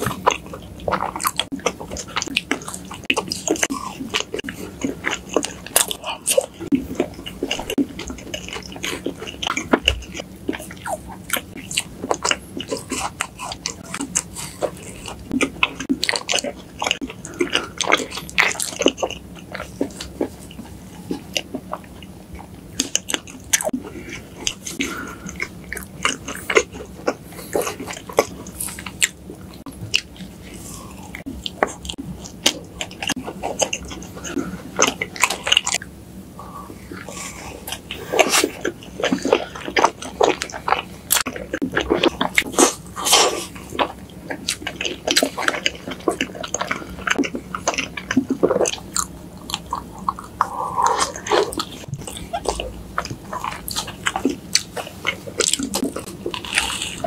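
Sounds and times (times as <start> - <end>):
chewing and biting soft cake: 0.0 - 57.0.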